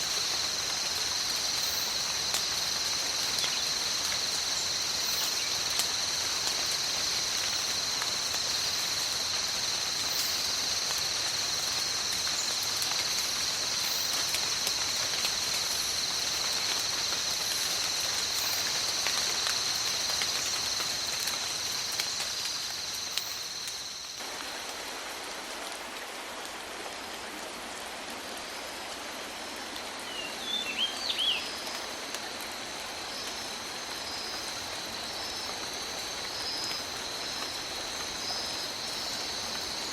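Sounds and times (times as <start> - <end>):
high-pitched insect chorus: 0.0 - 26.0, 30.0 - 39.9
steady rain: 0.0 - 39.9.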